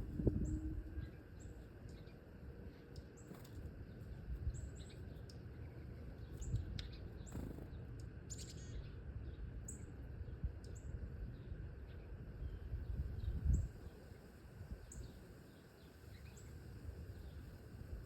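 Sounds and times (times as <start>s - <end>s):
low rumble: 0.0s - 1.2s
small birds chirping: 0.4s - 17.8s.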